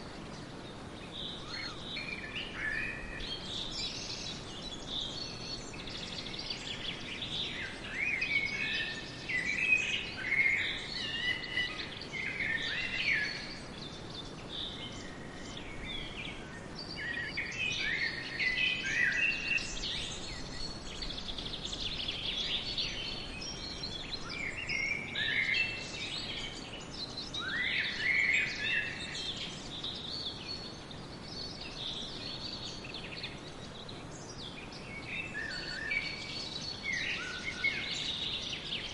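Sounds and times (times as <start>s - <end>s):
low background hiss: 0.0s - 38.9s
birds chirping and calling: 0.2s - 38.9s.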